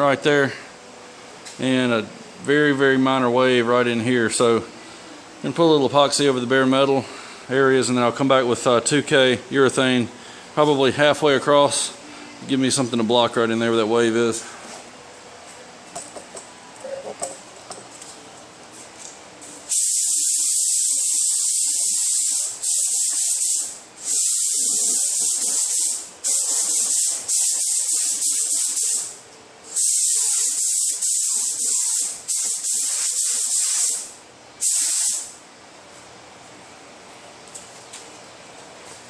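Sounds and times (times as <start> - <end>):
spray gun hissing: 19.7 - 29.1, 29.7 - 35.4.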